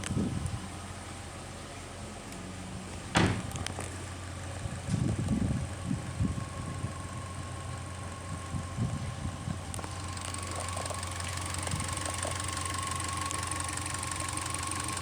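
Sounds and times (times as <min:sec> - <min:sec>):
car engine idling: 0:00.0 - 0:15.0
uneven low thuds: 0:03.0 - 0:03.9.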